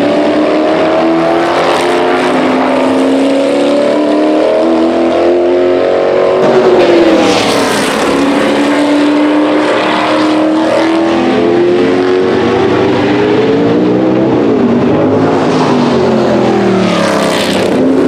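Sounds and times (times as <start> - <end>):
race car engines at speed: 0.0 - 18.0.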